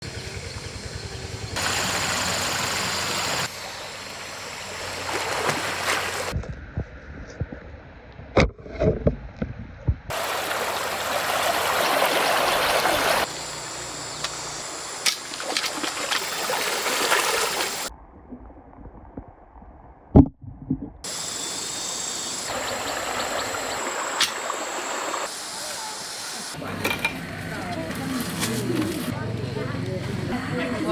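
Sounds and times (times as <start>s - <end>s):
stream water flowing and splashing: 1.6s - 6.4s, 10.1s - 17.9s, 21.0s - 27.1s.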